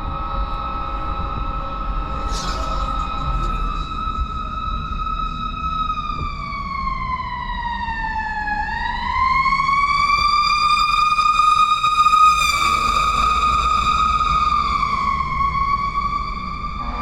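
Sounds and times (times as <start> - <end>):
emergency siren wailing: 0.0 - 17.0
low traffic rumble: 0.0 - 17.0.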